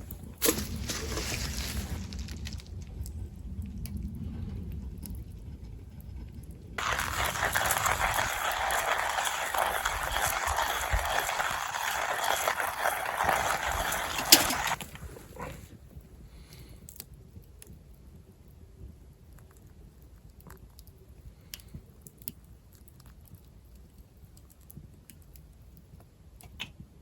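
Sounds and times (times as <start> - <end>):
hand coffee grinder grinding beans: 0.4 - 2.2, 6.8 - 15.6.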